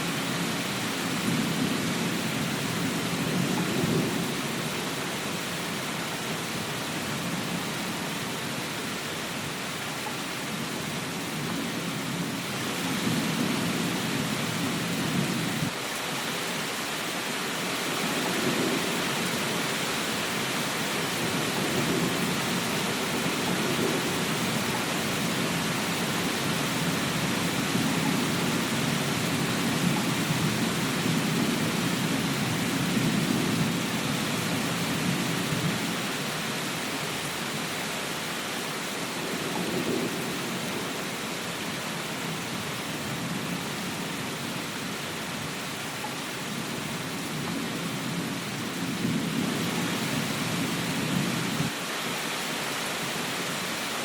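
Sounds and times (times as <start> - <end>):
heavy rain hissing: 0.0 - 54.0
low rolling thunder: 0.4 - 5.8, 10.7 - 15.8, 17.8 - 19.4, 21.1 - 36.0, 46.5 - 51.8.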